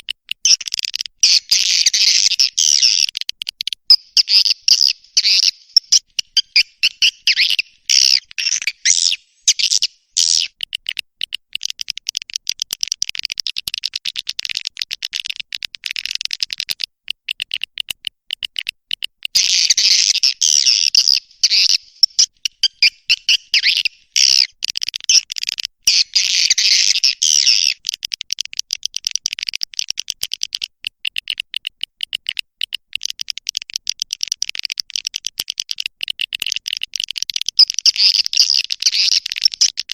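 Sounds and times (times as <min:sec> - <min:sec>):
swiftlets chirping and twittering: 0:01.2 - 0:03.1, 0:03.9 - 0:10.6, 0:19.4 - 0:24.5, 0:25.9 - 0:27.8, 0:37.5 - 0:39.9.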